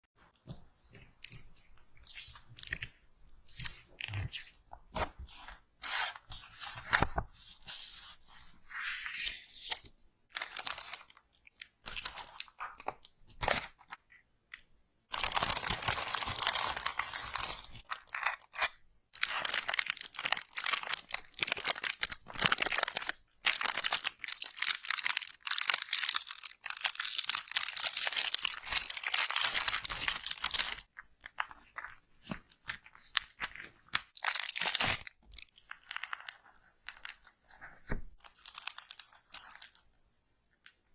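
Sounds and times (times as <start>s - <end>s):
slime crunching and crackling: 15.1s - 40.0s.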